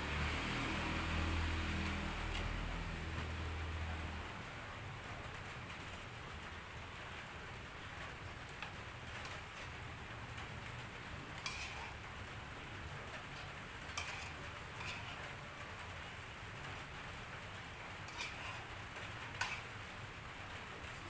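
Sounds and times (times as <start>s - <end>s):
light drizzling rain: 0.0s - 21.0s.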